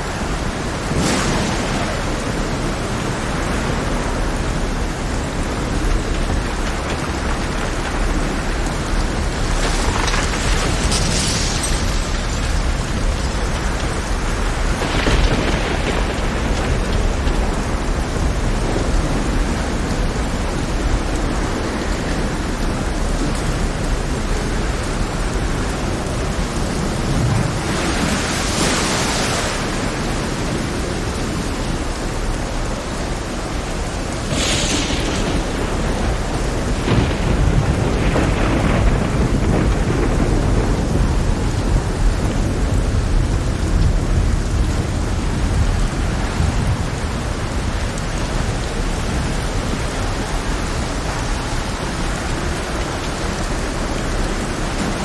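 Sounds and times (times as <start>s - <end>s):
heavy rain falling: 0.0s - 55.0s
low thunder rumble: 0.0s - 55.0s
sharp thunder cracks: 0.2s - 24.1s, 34.2s - 45.7s.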